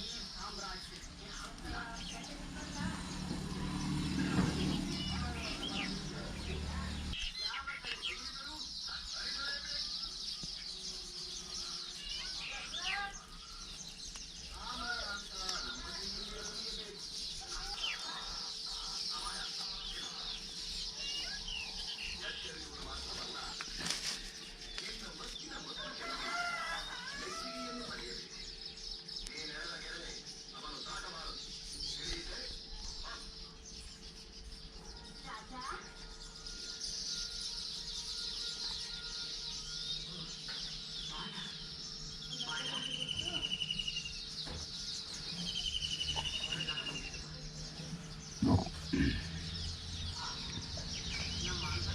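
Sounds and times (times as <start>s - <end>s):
small birds chirping: 0.0s - 51.9s
chickens clucking: 47.9s - 49.5s.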